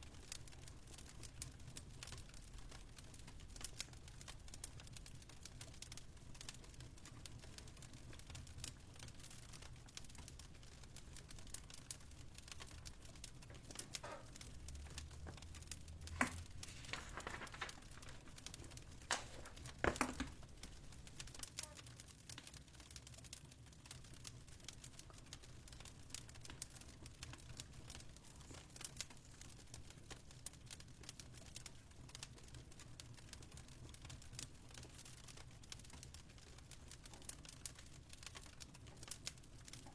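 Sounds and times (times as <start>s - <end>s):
fireplace crackling: 0.0s - 39.9s.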